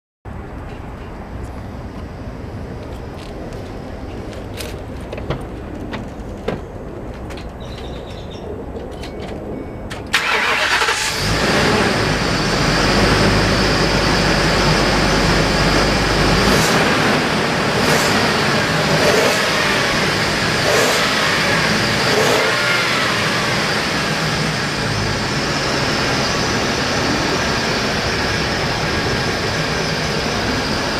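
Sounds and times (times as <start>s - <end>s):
engine cranking and starting: 10.1s - 12.2s
engine revving: 10.2s - 30.9s.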